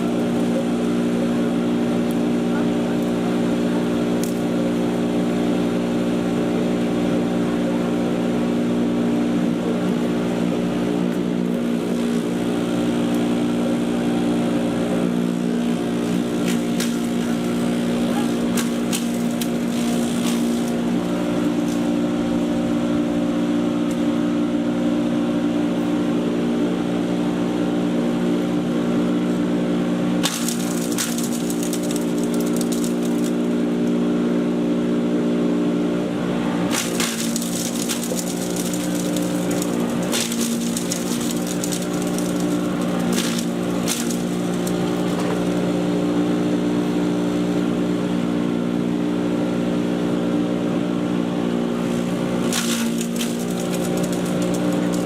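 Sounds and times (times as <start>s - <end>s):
chipper shredder motor hum: 0.0s - 55.0s
clicks and rattles: 51.8s - 55.0s.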